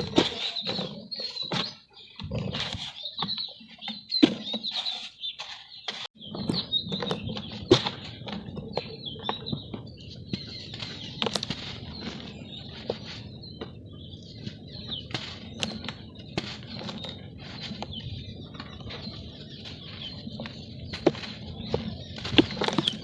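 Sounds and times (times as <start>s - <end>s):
birds chirping: 0.0s - 23.0s
dry dirt crumbling by hand: 6.6s - 23.0s.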